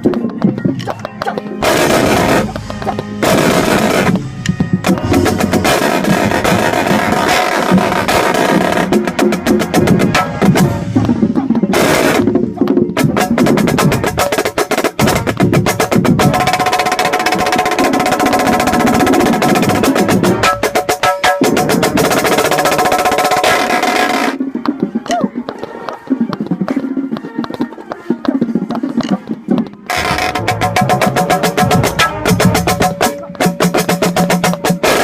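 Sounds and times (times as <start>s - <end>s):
marching band brass and percussion: 0.0s - 35.0s
marching snare drum rolls: 1.3s - 25.1s, 28.7s - 35.0s.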